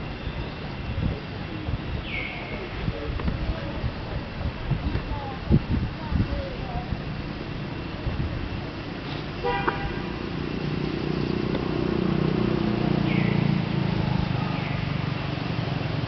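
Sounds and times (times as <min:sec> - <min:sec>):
passing vehicle engine hum: 0:00.0 - 0:16.0
horn toot: 0:09.4 - 0:10.2.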